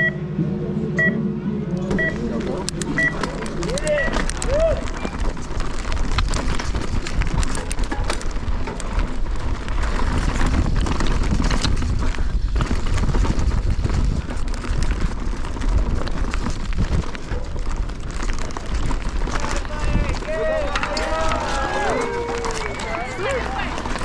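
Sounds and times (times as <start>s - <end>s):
tyres rumbling on ground: 1.8s - 24.0s
bike rattling and clacking: 2.0s - 24.0s
wind buffeting microphone: 2.7s - 24.0s.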